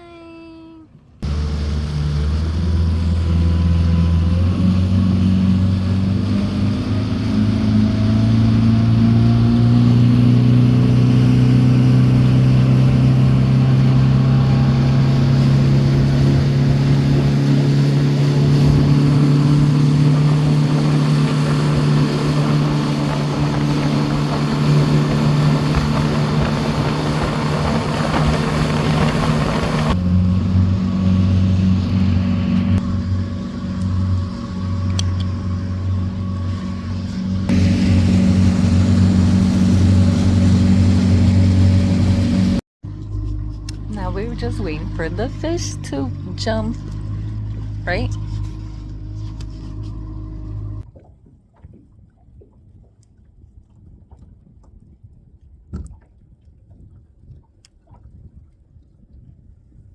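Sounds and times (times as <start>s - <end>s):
motorboat engine: 0.9s - 51.2s
wind and water rushing: 1.2s - 42.6s.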